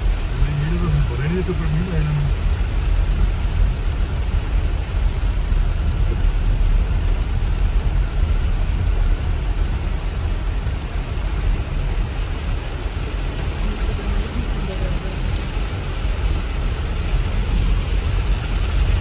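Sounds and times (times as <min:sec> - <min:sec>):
rushing floodwater: 0:00.0 - 0:19.0.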